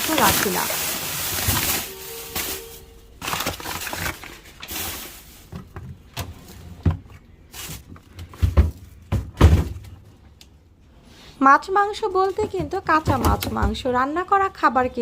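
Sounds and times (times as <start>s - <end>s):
rustling: 0.0s - 6.6s
food containers being handled: 0.0s - 10.2s.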